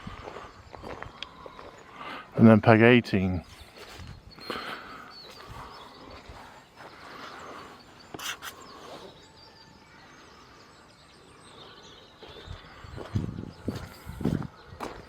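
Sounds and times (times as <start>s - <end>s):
outdoor background noise: 0.0s - 15.0s
small birds chirping: 0.0s - 15.0s
footsteps walking: 0.2s - 1.8s, 12.2s - 15.0s.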